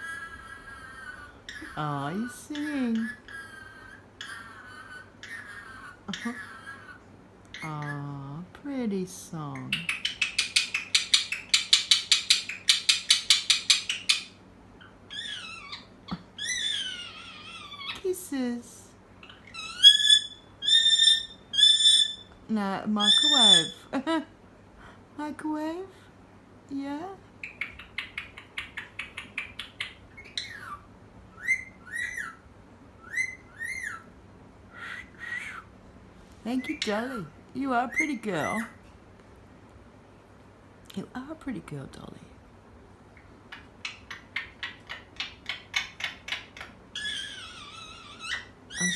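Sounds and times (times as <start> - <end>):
parrot chattering notes: 9.6 - 18.1, 19.2 - 23.9, 27.4 - 32.4, 36.6 - 38.8, 43.2 - 48.9
parrot warbling whistled calls: 19.2 - 22.4, 23.0 - 23.8, 27.4 - 32.4, 33.0 - 34.1.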